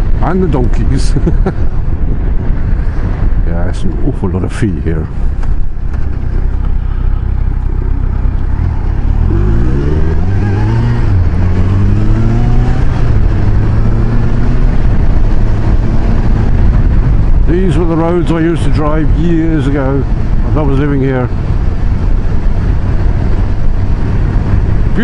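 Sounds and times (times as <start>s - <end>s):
wind rushing over microphone: 0.0s - 25.0s
motorcycle engine accelerating: 5.4s - 25.0s.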